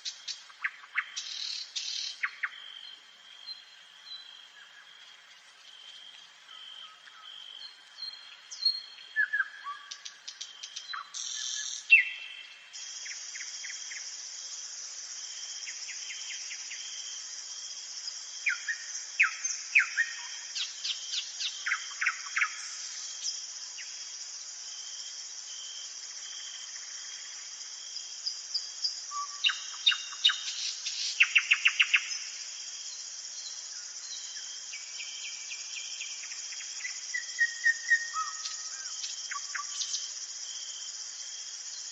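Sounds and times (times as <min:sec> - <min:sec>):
nightingale singing: 0:00.0 - 0:04.9, 0:06.5 - 0:14.1, 0:18.2 - 0:24.0, 0:28.0 - 0:40.2
crickets chirring: 0:00.0 - 0:41.9.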